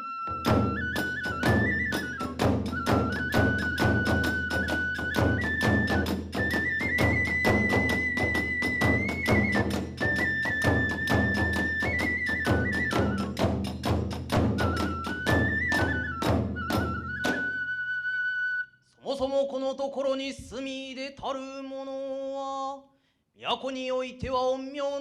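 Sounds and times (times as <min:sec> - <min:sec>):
bamboo flute melody: 0:00.0 - 0:19.0
drums beating: 0:00.3 - 0:17.6.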